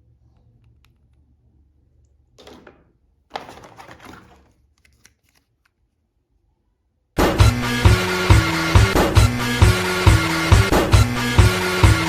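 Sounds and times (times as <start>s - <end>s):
rustling of handling: 2.4s - 6.2s.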